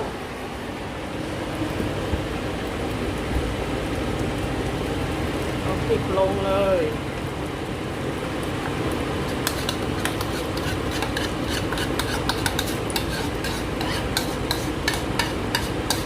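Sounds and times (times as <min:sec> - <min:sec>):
paste frying: 0:08.3 - 0:16.0
spatula scraping in a pan: 0:09.2 - 0:16.0
spatula knocking against pan: 0:09.4 - 0:16.0.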